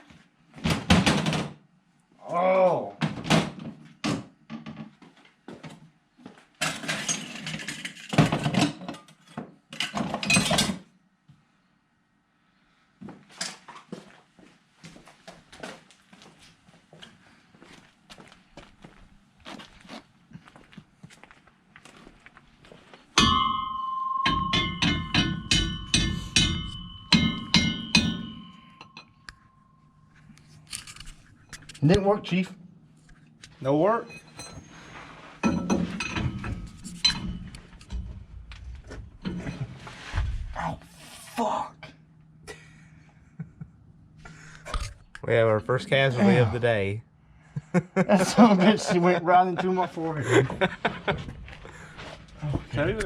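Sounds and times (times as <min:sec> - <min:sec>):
metal rattling and scraping: 0:06.6 - 0:09.1, 0:34.0 - 0:40.6
hand tools and metal parts clattering: 0:06.6 - 0:10.9, 0:23.2 - 0:29.6, 0:30.2 - 0:32.1, 0:33.4 - 0:40.4
hammer striking steel driveshaft: 0:23.2 - 0:29.4.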